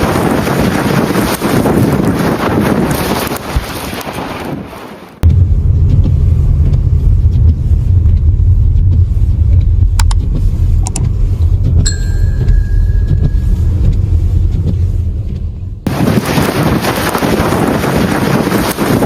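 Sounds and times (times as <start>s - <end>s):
vehicle rumbling on road: 5.2s - 19.0s.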